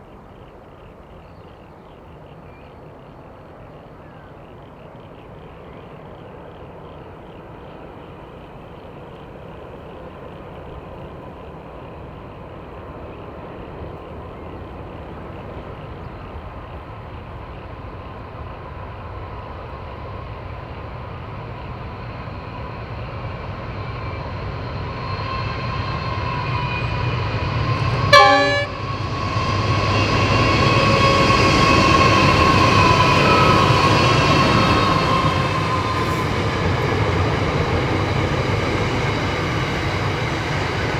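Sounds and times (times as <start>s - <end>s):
diesel train passing: 0.0s - 40.9s
train horn blast: 27.8s - 30.0s.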